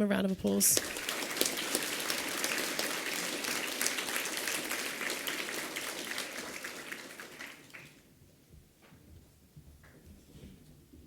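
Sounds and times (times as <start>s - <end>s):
children applauding: 0.7s - 8.1s.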